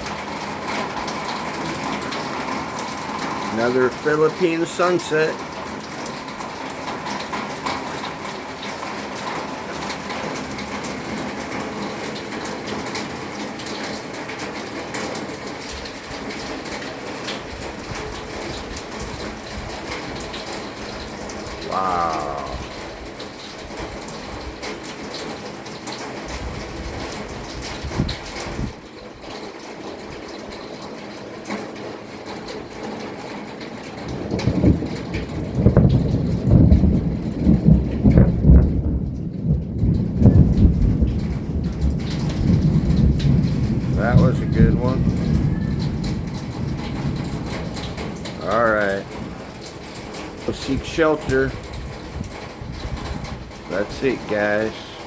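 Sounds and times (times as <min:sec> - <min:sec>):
raindrops hitting surfaces: 0:00.0 - 0:55.0
steady rain falling: 0:00.0 - 0:55.0
thunder rumbling: 0:15.2 - 0:24.5, 0:34.0 - 0:55.0.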